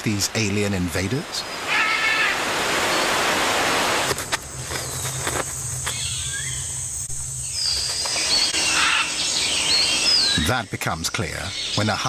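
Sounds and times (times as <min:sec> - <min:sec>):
high insect whine: 0:01.6 - 0:12.0
low hum: 0:04.1 - 0:10.8.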